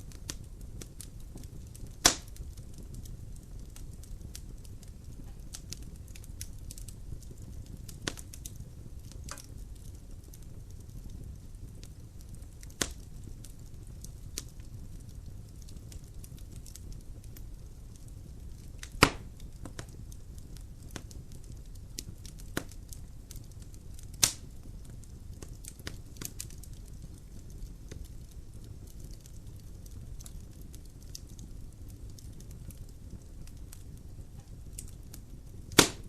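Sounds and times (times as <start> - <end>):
fire crackling: 0.0 - 36.0
fire rumbling: 0.0 - 36.0
loud sharp pops: 2.0 - 2.3, 19.0 - 19.3, 35.7 - 36.0.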